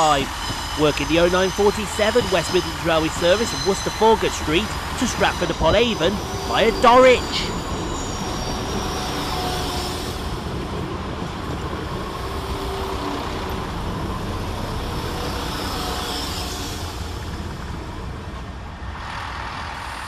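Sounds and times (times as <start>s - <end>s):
faint tones: 0.0s - 10.4s
diesel train engines rumbling: 0.0s - 20.0s.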